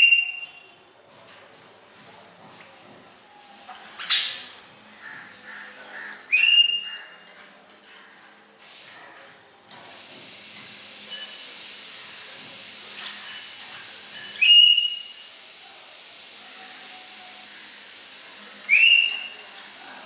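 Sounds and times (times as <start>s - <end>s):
bird whistled calls: 0.0s - 0.7s, 6.3s - 7.0s, 14.2s - 15.3s, 18.7s - 19.5s
steady hiss: 8.4s - 20.0s.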